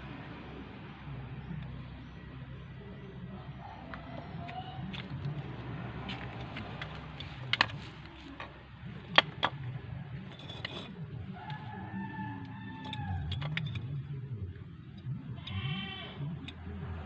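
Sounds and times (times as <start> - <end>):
rooster crowing: 3.4 - 5.0, 11.3 - 13.6.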